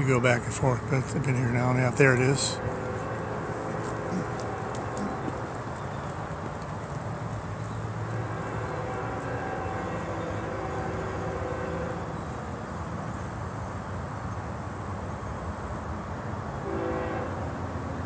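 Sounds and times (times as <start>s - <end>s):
distant train rumbling: 0.0s - 15.0s
faint train horn: 2.3s - 5.5s, 8.0s - 12.3s, 16.6s - 17.7s.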